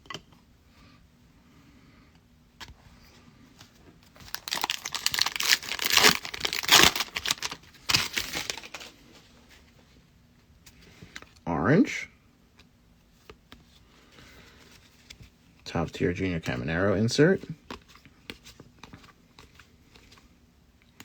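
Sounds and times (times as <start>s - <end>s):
foil wrapper tearing and crinkling: 4.2s - 9.0s.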